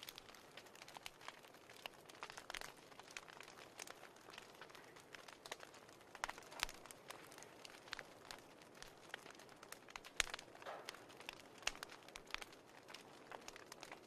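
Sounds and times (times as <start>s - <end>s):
fireplace crackling: 0.0s - 14.0s.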